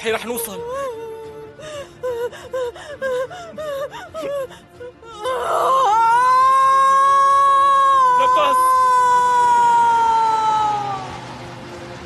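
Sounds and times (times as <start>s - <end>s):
background music: 0.0s - 12.0s
woman panting and moaning: 0.6s - 6.1s.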